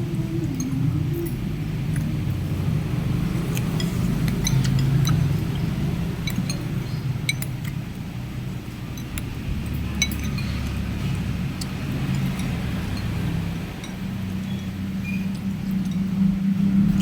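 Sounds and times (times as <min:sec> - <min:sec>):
steady low hum: 0:00.0 - 0:17.0
spoon clinking against bowl: 0:03.5 - 0:07.8, 0:08.9 - 0:16.0.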